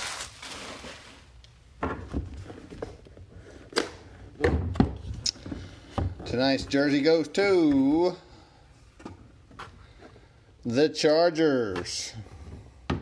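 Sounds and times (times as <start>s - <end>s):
box and packaging being opened: 0.0s - 1.4s.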